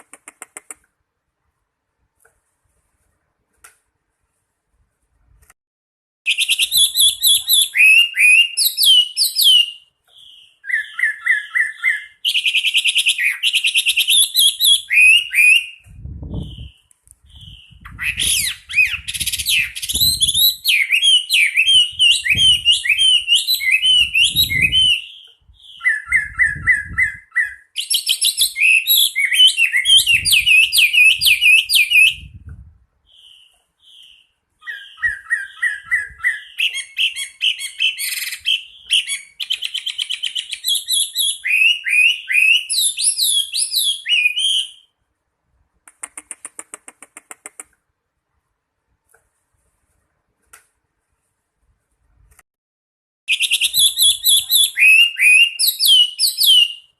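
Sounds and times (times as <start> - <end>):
bird singing whistled song: 6.3 - 32.4, 33.0 - 45.0, 53.3 - 56.9.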